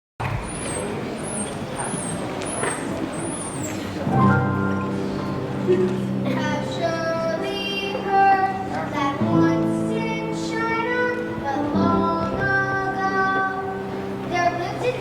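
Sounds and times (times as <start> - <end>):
instrumental low chords: 4.1 - 7.3
children singing: 6.2 - 15.0.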